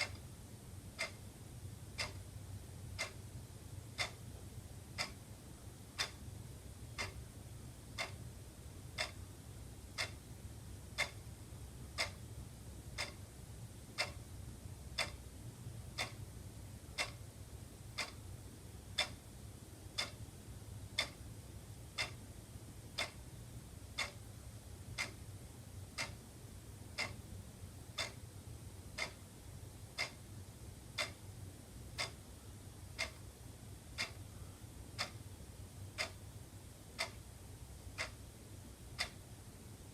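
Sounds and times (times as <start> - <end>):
faint low hum: 0.0 - 39.9
wall clock ticking: 0.0 - 39.9.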